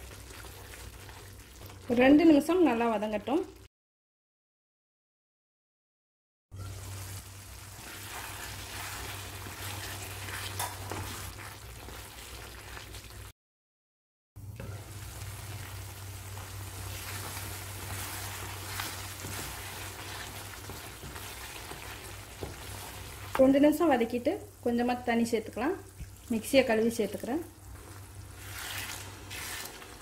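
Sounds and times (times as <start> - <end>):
chicken sizzling in a pan: 0.0 - 2.0, 6.6 - 13.3, 14.6 - 30.0
wooden spatula scraping a pan: 7.8 - 13.0, 16.3 - 23.4, 27.7 - 30.0.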